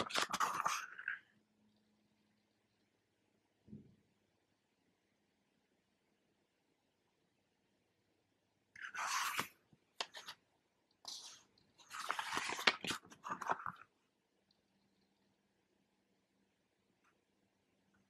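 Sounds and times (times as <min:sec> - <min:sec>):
paper crinkling: 0:00.0 - 0:01.2, 0:08.8 - 0:10.4, 0:11.1 - 0:14.0.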